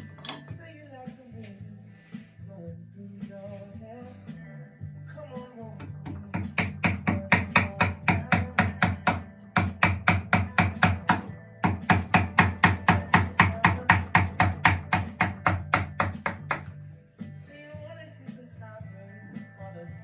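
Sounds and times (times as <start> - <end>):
quiet background music: 0.0 - 20.0
mallet tapping chisel into wood: 5.8 - 16.7.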